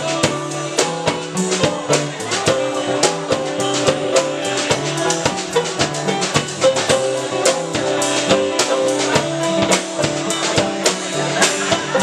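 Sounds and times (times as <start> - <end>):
drum kit beat: 0.0 - 12.0
live band playing instrumental: 0.0 - 12.0.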